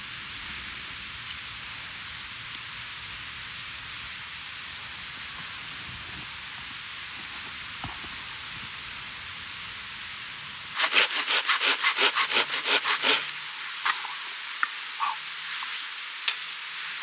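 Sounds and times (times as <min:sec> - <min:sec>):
steady hiss: 0:00.0 - 0:17.0
hand saw cutting wood: 0:10.8 - 0:13.5.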